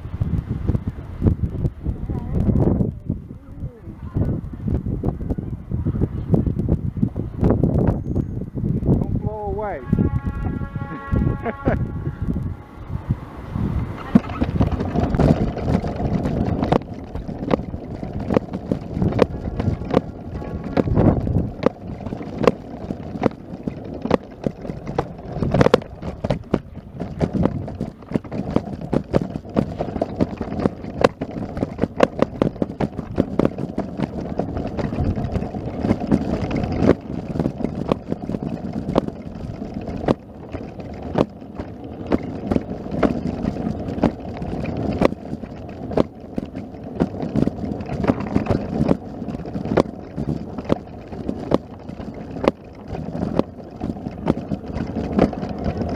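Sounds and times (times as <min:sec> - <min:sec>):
wind buffeting microphone: 0:00.0 - 0:55.9
sharp clicks and knocks: 0:13.8 - 0:55.9.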